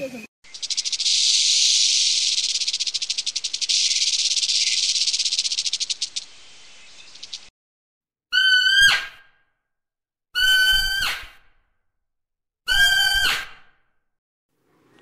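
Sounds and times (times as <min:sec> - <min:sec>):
snake rasping warning buzz: 0:00.4 - 0:07.5.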